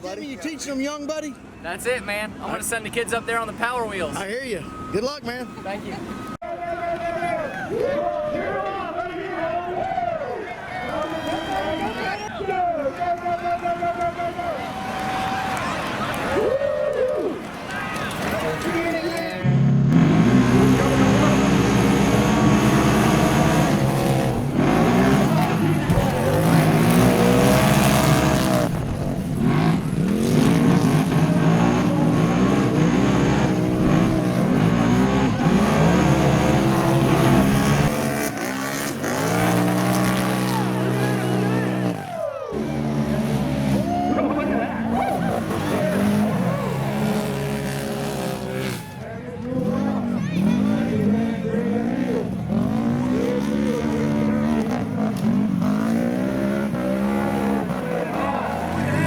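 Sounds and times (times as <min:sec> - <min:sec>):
truck engine revving hard: 0:19.5 - 0:48.9, 0:49.6 - 0:59.0.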